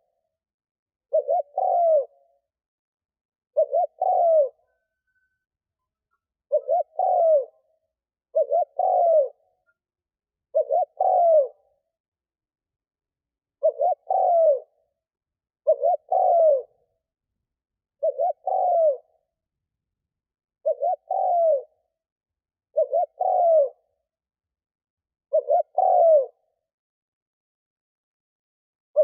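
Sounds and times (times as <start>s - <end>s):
dove cooing: 1.1s - 2.4s, 3.6s - 5.4s, 6.1s - 9.8s, 10.5s - 11.9s, 13.6s - 15.0s, 15.6s - 16.9s, 18.0s - 19.3s, 20.6s - 22.0s, 22.7s - 24.0s, 25.3s - 26.5s.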